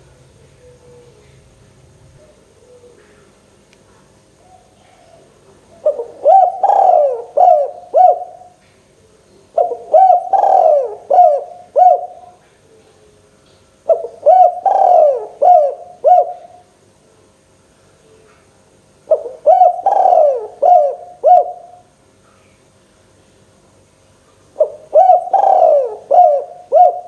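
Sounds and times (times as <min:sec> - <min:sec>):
dove cooing: 0:00.0 - 0:01.6, 0:02.2 - 0:03.4, 0:04.4 - 0:13.2, 0:13.9 - 0:16.7, 0:19.1 - 0:21.9, 0:24.6 - 0:27.0.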